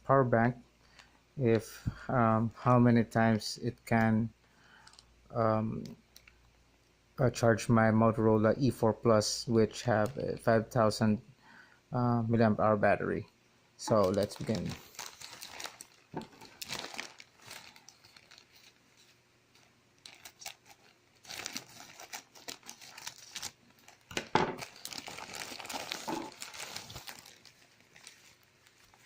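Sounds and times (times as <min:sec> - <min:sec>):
packaging crinkling and rustling: 0:13.8 - 0:29.0.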